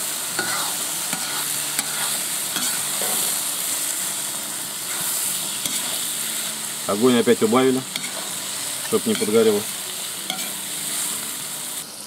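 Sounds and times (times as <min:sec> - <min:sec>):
meat and onions sizzling: 0:00.0 - 0:12.0
metal spoon scraping and clinking pot: 0:07.9 - 0:08.3, 0:10.3 - 0:10.6.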